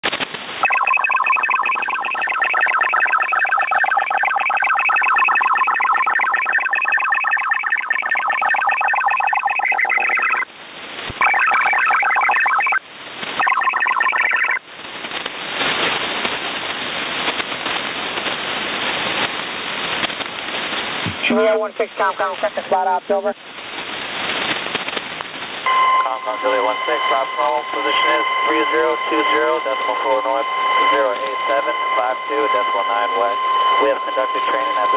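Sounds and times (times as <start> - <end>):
radio static hiss: 0.0 - 34.9
radio buzzing chord of tones: 0.6 - 10.5, 25.7 - 34.9.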